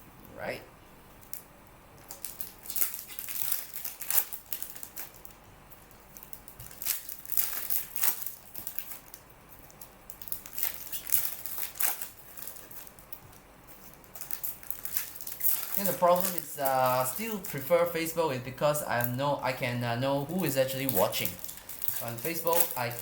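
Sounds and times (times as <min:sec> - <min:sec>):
plastic wrappers crinkling: 0:02.0 - 0:23.0.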